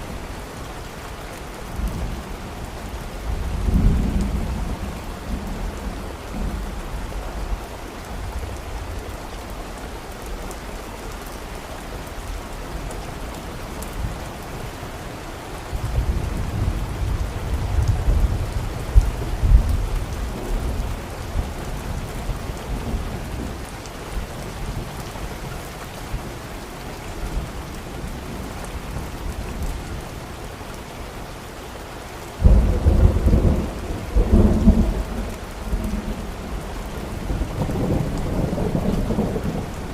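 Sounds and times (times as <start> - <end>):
steady rain falling: 0.0 - 39.9
thunder rumbling: 32.4 - 39.9.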